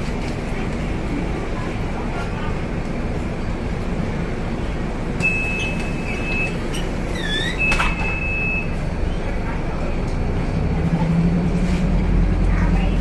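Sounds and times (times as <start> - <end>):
bus engine and road rumble: 0.0 - 13.0
long high beeps: 5.2 - 6.6
curved squeak: 5.3 - 8.4.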